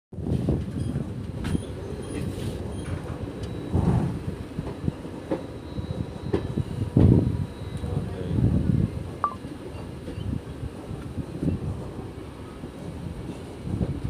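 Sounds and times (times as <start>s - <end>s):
train wheels rumbling on track: 0.2s - 14.0s.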